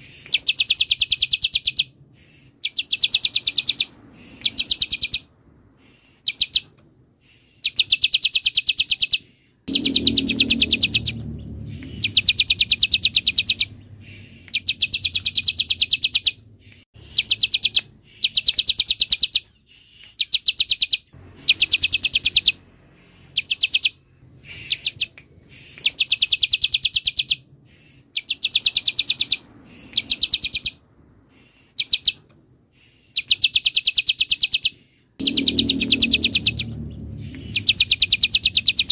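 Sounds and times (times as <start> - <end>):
bird singing sharp high notes: 2.6 - 5.4, 7.6 - 19.6, 20.2 - 27.5, 33.2 - 38.9.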